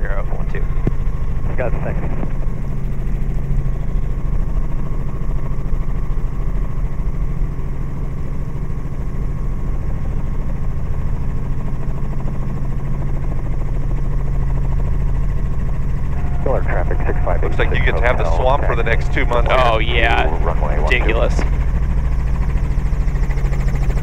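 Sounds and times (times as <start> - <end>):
helicopter drone: 0.0 - 24.0.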